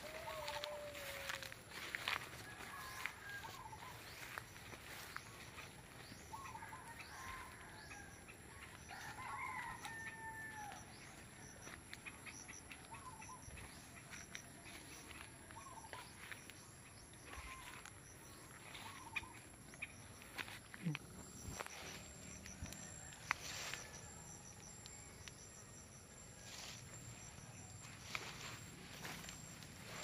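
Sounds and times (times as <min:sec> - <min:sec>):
rooster crowing: 0:00.0 - 0:05.2, 0:06.3 - 0:11.2, 0:21.6 - 0:25.3.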